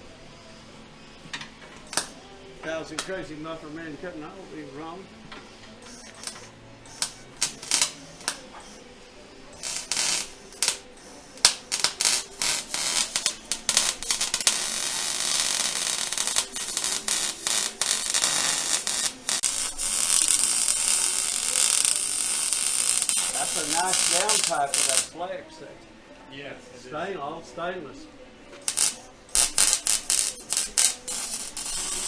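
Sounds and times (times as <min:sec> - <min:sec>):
welder crackling: 0:01.8 - 0:02.2, 0:05.9 - 0:08.4, 0:09.6 - 0:25.2, 0:28.6 - 0:32.0.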